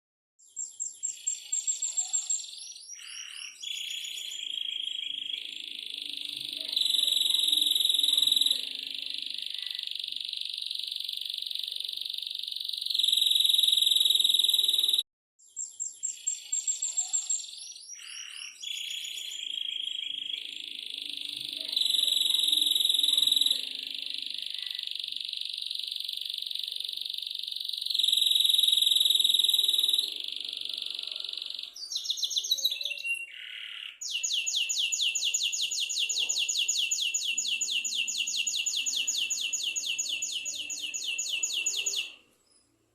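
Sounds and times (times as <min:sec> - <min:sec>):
canary singing trills: 0:00.4 - 0:42.8.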